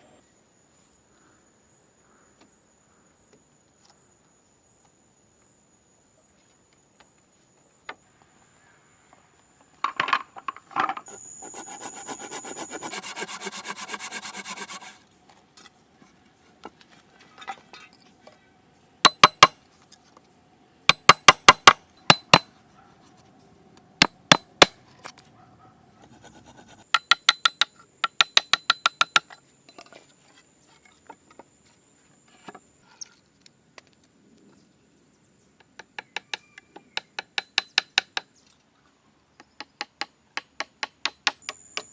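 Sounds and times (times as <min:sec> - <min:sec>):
fast scraping of wood: 0:11.1 - 0:15.0, 0:26.0 - 0:26.9
ringing hammer blows: 0:11.1 - 0:15.0.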